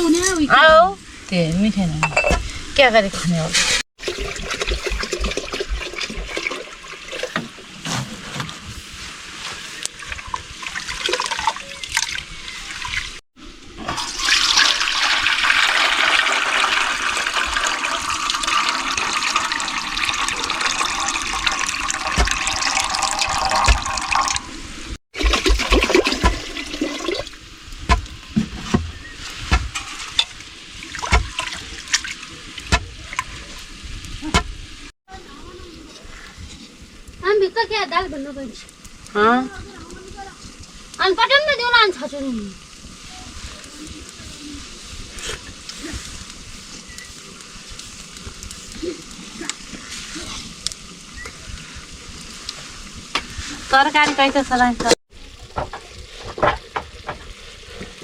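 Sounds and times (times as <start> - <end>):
kitchen knocks and clinks: 2.0 - 2.4
water pouring: 3.7 - 7.9, 9.8 - 35.6.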